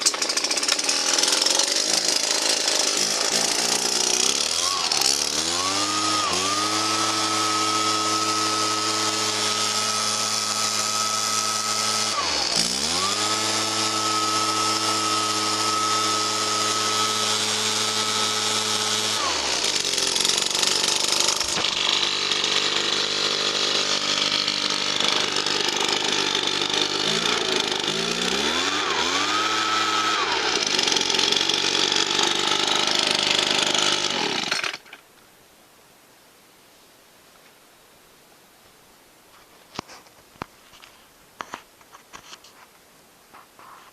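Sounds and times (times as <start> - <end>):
two-stroke blower engine revving: 0.0 - 34.8.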